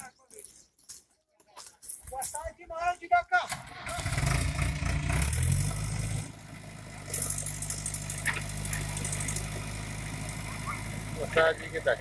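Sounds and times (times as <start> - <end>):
diesel engine running: 3.5 - 12.0.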